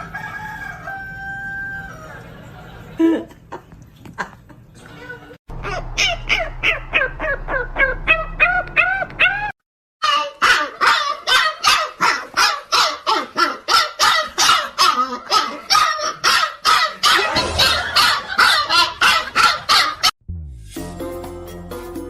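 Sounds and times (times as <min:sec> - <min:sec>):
dog barking: 0:05.6 - 0:20.1.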